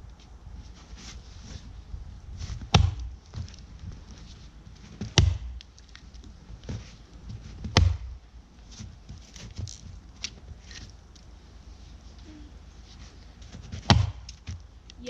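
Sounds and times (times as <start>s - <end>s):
axe chopping into tree trunk: 2.7s - 3.2s, 5.0s - 5.6s, 7.6s - 8.2s, 13.7s - 14.6s.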